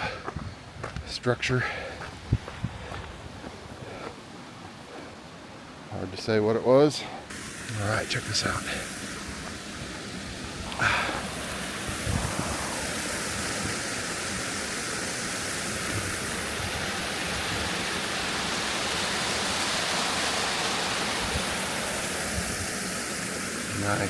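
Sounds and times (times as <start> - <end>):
waterfall rushing: 7.3 - 24.0.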